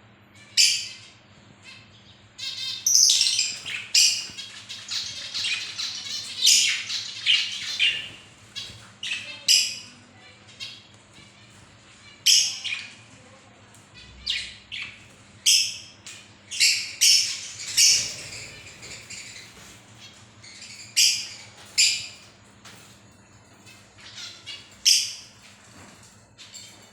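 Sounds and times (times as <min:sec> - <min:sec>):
birds giving shrill calls: 0:02.4 - 0:13.0, 0:14.0 - 0:22.3.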